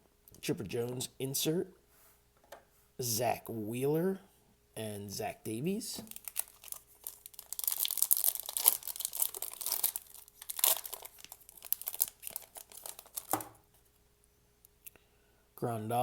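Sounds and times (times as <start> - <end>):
foil wrapper tearing and crinkling: 6.0 - 13.5.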